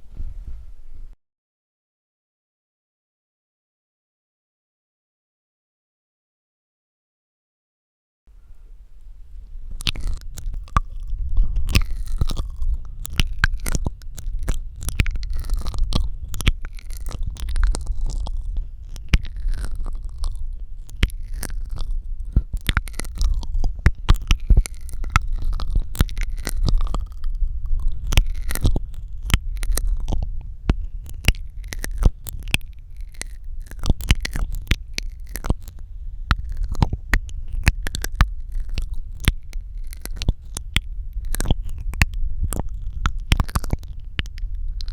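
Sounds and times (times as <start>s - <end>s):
low rumble: 8.3s - 44.9s
wet mouth clicks and smacks: 9.6s - 44.9s.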